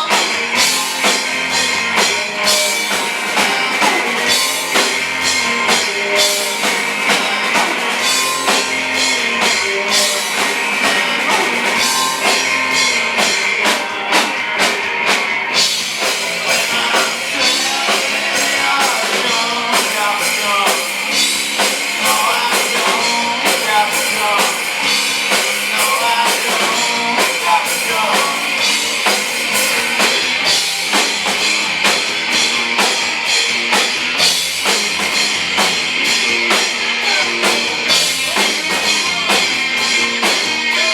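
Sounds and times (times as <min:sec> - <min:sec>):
person singing: 0:00.0 - 0:31.0, 0:36.0 - 0:40.9
distorted electric guitar: 0:00.0 - 0:40.9
drum kit with cymbals: 0:00.0 - 0:40.9.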